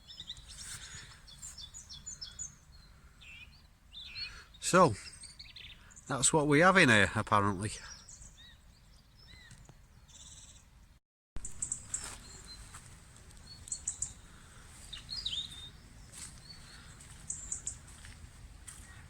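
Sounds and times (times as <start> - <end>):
small birds chirping: 0.0 - 10.8, 11.4 - 19.0
low outdoor rumble: 11.4 - 19.0.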